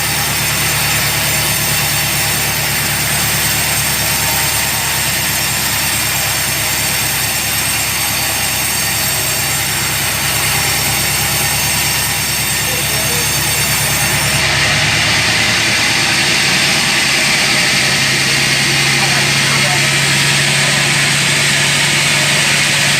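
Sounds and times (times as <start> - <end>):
sawmill machinery running: 0.0 - 22.9.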